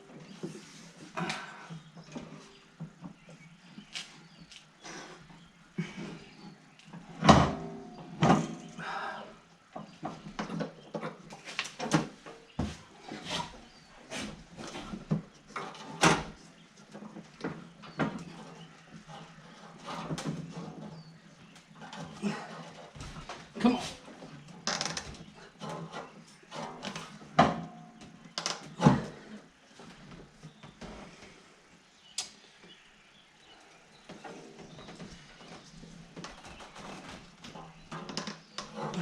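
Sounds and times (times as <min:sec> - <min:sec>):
tools knocking and scraping metal: 0:07.1 - 0:08.8.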